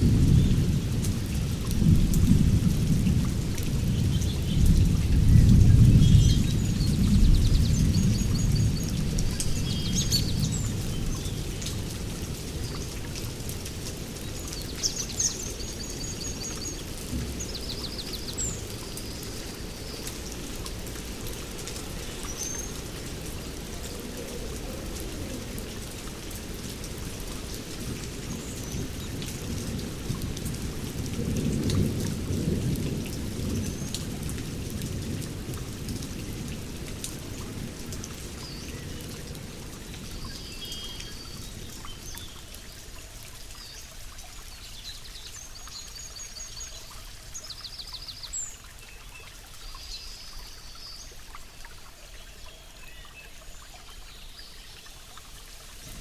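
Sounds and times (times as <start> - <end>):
rolling thunder: 0.0 - 10.6
steady rain: 0.0 - 56.0.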